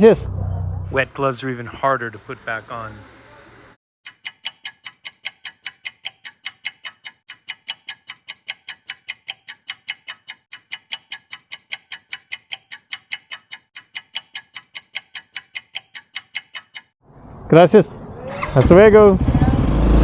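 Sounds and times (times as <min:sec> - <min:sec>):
rapid bright ticking: 0:04.0 - 0:17.0.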